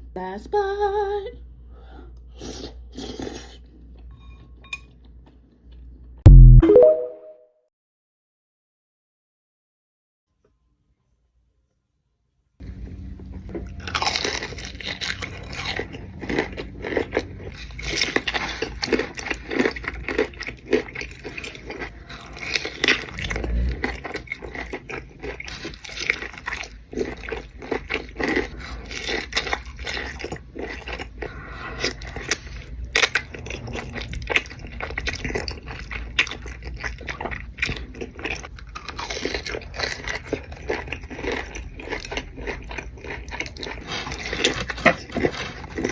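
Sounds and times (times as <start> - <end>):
person chewing crunchy food: 12.8 - 45.9.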